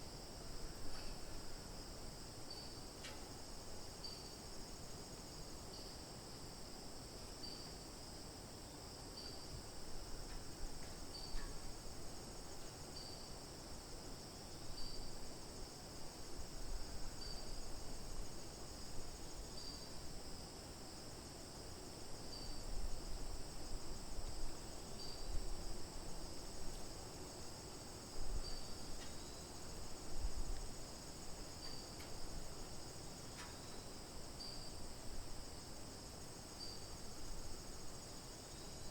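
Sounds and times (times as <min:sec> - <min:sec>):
crickets trilling: 0:00.1 - 0:38.9
short insect chirp: 0:00.2 - 0:06.0, 0:07.2 - 0:08.0, 0:08.6 - 0:20.4, 0:22.1 - 0:38.9.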